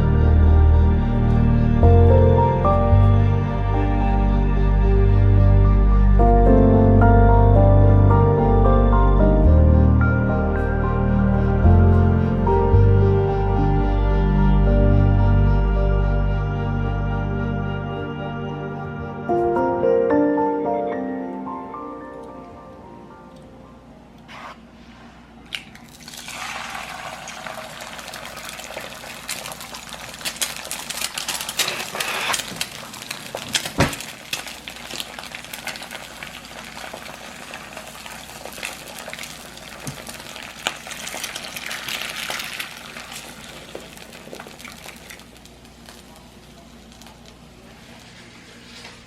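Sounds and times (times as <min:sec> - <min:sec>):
water running: 0:25.5 - 0:48.0.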